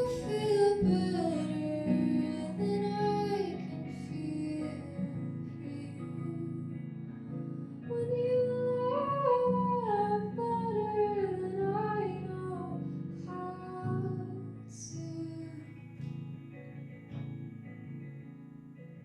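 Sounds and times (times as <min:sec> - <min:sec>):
person singing: 0:00.0 - 0:07.0, 0:07.8 - 0:15.7
guitar chords: 0:00.0 - 0:19.0.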